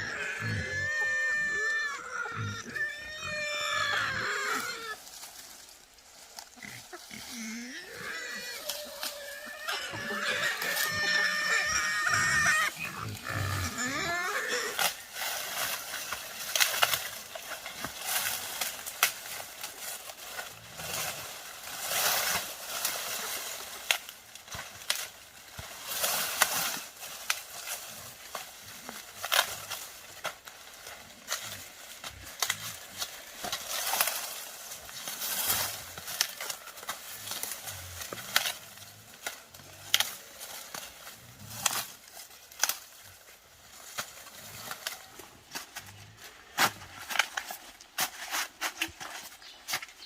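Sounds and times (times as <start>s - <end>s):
wild boar squealing and grunting: 0.0s - 5.1s, 6.5s - 15.8s.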